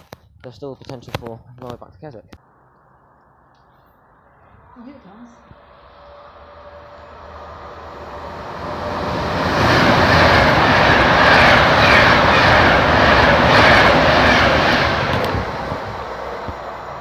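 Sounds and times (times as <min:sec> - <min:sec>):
train passing at speed: 0:04.0 - 0:17.0.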